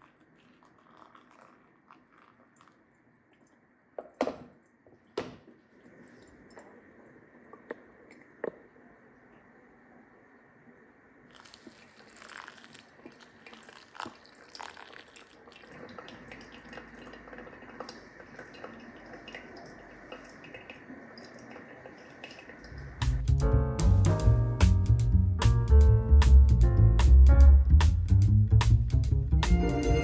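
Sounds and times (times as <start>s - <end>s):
music with heavy bass line: 23.0s - 30.0s.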